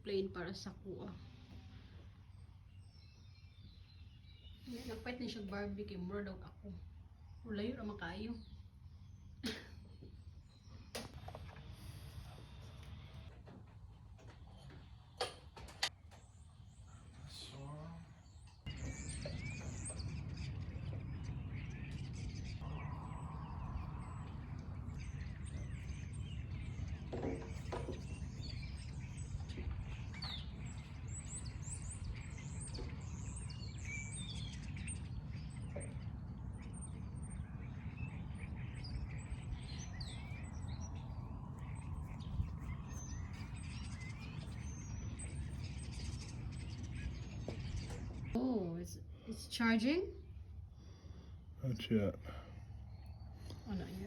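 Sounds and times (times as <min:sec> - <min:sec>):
small birds chirping: 0:00.0 - 0:54.0
low background rumble: 0:16.2 - 0:54.0.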